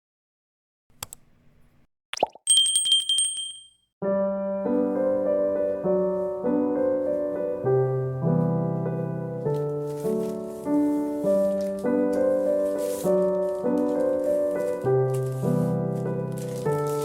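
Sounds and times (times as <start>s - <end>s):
bright ding: 2.2s - 3.8s
gentle solo piano music: 4.0s - 17.0s.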